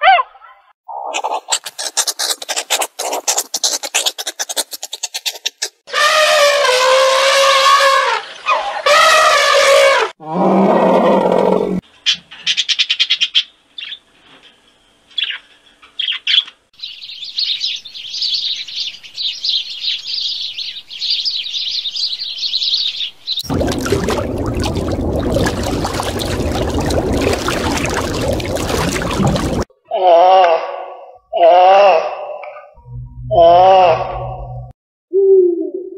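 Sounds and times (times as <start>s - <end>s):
macaw clicks and squawks: 1.2s - 5.8s
elephant trumpeting: 5.9s - 8.2s
sparrows chirping: 16.0s - 23.4s.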